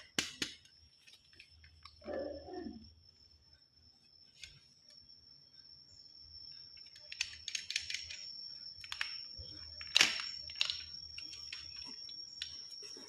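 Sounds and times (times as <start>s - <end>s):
faint high whine: 0.6s - 13.0s
plastic clicks and crackles: 6.8s - 12.7s.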